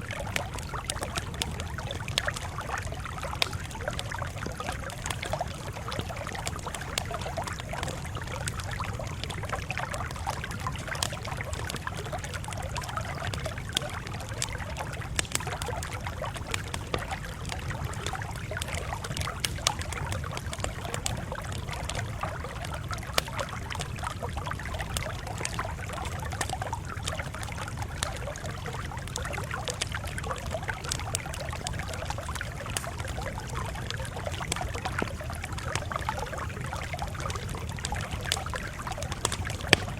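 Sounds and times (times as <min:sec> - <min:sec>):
campfire crackling and popping: 0:00.0 - 0:39.9
low fire rumble: 0:00.0 - 0:39.9.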